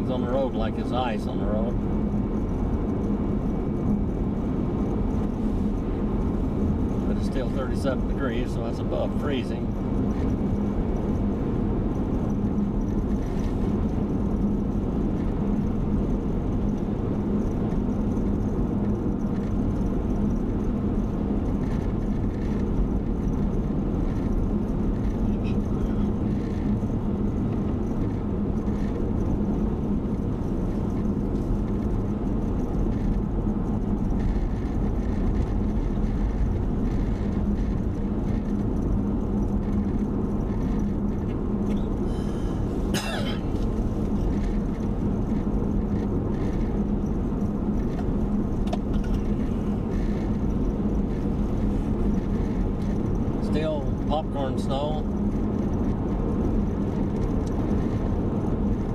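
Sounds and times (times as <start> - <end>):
car cabin engine and tyre drone: 0.0 - 58.9.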